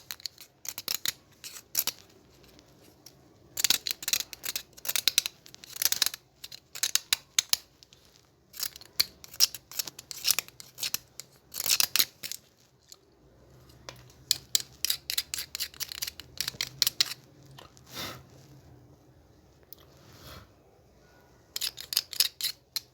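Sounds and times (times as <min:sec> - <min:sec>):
hand tool snipping and scraping: 0:13.8 - 0:17.2, 0:21.5 - 0:22.9.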